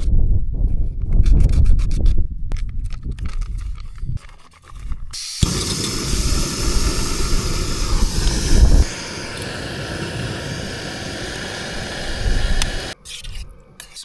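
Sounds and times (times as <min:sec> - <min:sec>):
gas stove burner roaring: 0:05.2 - 0:13.0
low rumble: 0:05.4 - 0:13.0.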